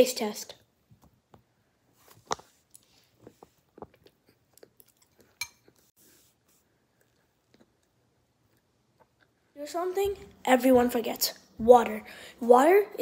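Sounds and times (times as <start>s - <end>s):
person chewing food: 2.2s - 5.9s, 6.8s - 9.4s.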